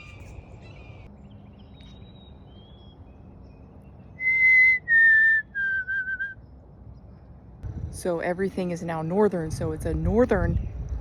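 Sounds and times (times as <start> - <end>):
person whistling: 4.2 - 6.4.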